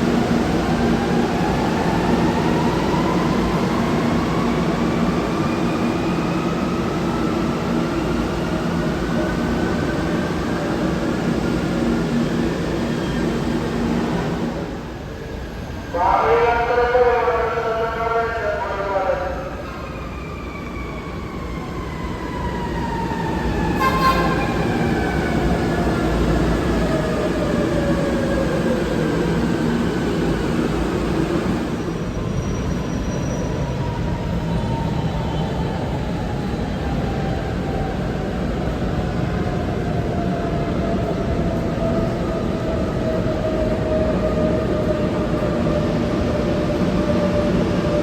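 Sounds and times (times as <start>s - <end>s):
short train horn toot: 23.8s - 24.6s.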